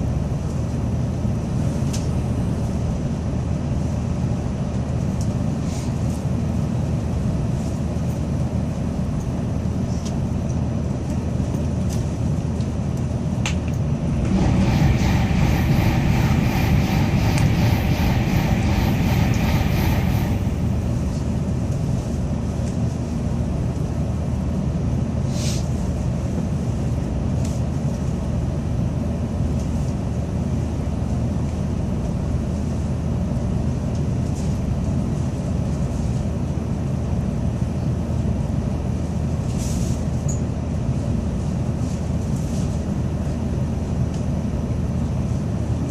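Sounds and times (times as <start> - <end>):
train wheels and air rumbling: 0.0 - 45.9
hum: 13.4 - 24.3.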